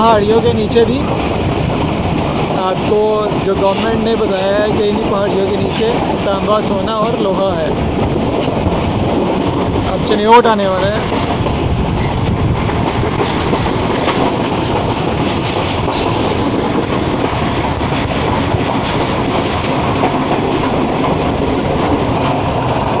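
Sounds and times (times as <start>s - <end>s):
passenger train rumble and rattle: 0.0s - 23.0s.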